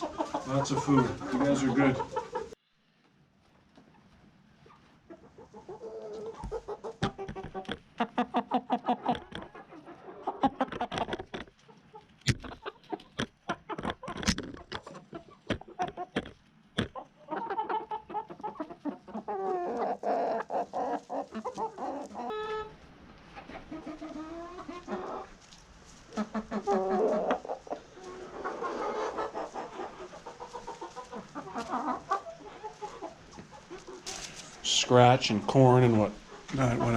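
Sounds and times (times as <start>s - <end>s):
chickens clucking: 0.0s - 2.6s, 3.4s - 36.9s
sharp knocks and clicks: 12.2s - 17.0s.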